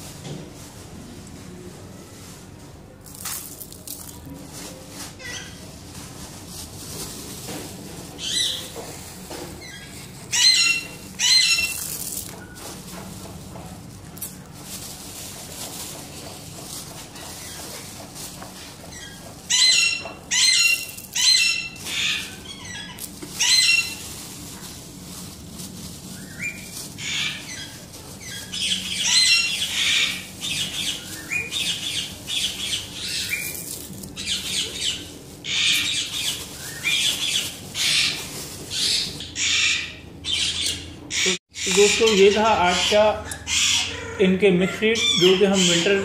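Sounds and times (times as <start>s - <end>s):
harsh bird squawks: 5.2s - 5.6s, 8.2s - 8.7s, 9.6s - 12.2s, 18.9s - 24.0s, 26.3s - 46.0s.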